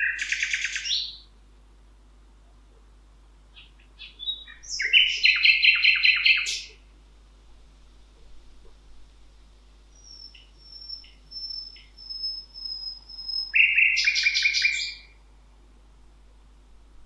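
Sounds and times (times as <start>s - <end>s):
bird chirps: 0.0s - 1.3s, 3.5s - 6.8s, 9.9s - 15.2s
rapid bird chirps: 0.0s - 1.3s, 3.5s - 6.8s, 9.9s - 15.2s
songbirds singing high notes: 0.0s - 1.3s, 3.6s - 6.8s, 9.9s - 15.2s.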